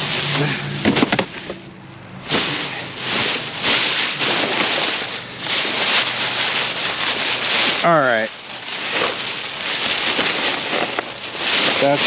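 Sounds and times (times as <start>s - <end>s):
trash clattering knocks: 0.0s - 1.6s, 2.2s - 6.2s
rustling of loose items: 0.0s - 12.0s.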